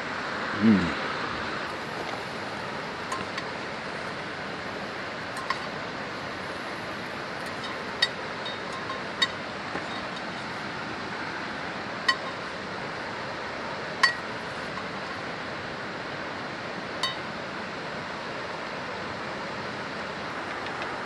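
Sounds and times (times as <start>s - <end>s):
light ringing clinks: 3.0s - 4.2s, 5.3s - 5.9s, 6.6s - 10.8s, 14.0s - 15.2s, 17.0s - 17.4s.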